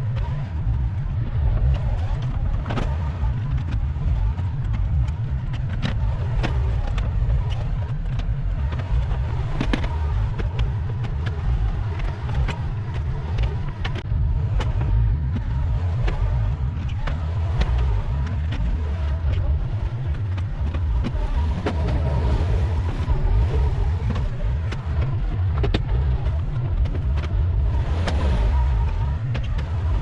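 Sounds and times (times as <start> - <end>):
loader engine rumble: 0.0 - 30.0.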